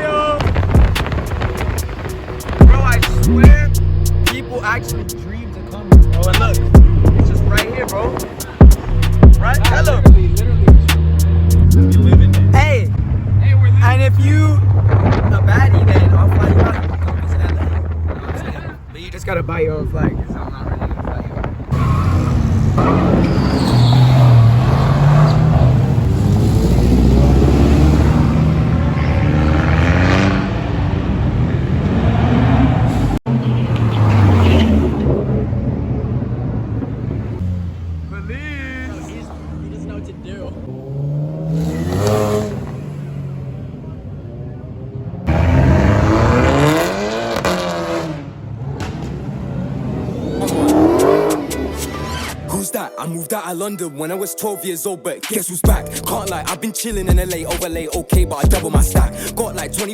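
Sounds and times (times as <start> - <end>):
car engine revving: 0.4 - 18.6, 21.7 - 52.6.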